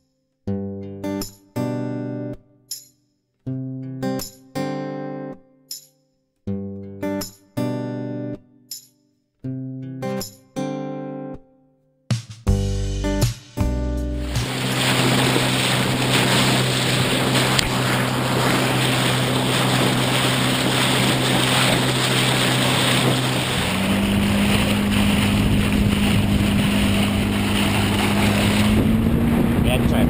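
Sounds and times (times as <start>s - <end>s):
outboard motor running: 14.0s - 30.0s
water noise: 14.0s - 30.0s
wind: 14.2s - 30.0s.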